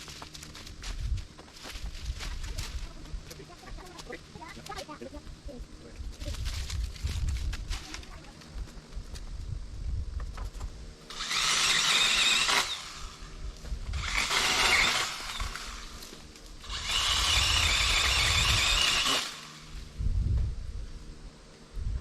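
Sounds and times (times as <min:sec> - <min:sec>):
pole saw cutting branches: 0:11.0 - 0:19.9.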